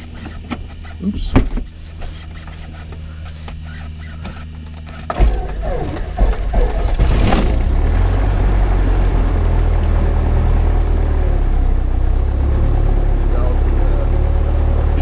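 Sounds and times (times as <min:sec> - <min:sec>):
airplane piston engine idling: 0:00.0 - 0:07.9.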